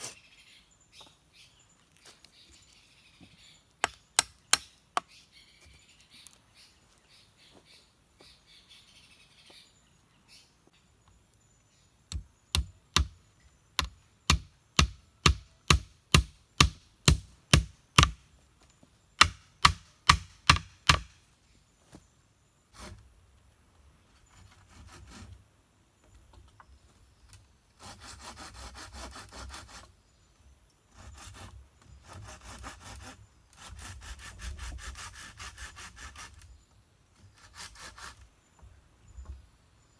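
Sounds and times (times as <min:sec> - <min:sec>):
wood being chopped: 0:03.8 - 0:05.1, 0:12.1 - 0:13.2, 0:13.8 - 0:18.2, 0:19.2 - 0:21.2
wood being sawn: 0:27.8 - 0:29.8, 0:32.1 - 0:36.4.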